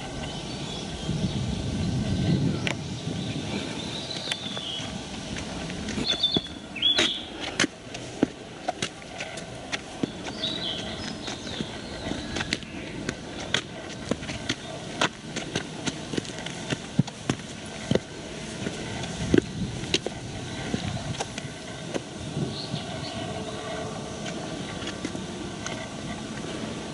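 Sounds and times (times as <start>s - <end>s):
bird chirp: 0.2s - 5.0s, 6.0s - 7.4s, 10.0s - 13.8s, 22.4s - 24.9s
footsteps crunching on path: 2.0s - 26.7s.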